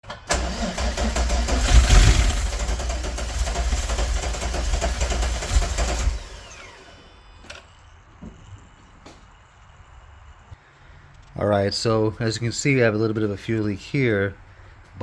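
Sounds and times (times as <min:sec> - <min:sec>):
car engine running unevenly: 0:00.2 - 0:07.1
engine spinning down whine: 0:00.3 - 0:07.8.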